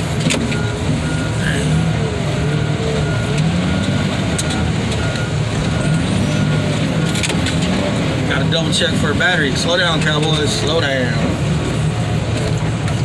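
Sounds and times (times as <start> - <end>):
backup alarm beeping: 0.0 - 7.2
diesel engine running: 0.0 - 13.0.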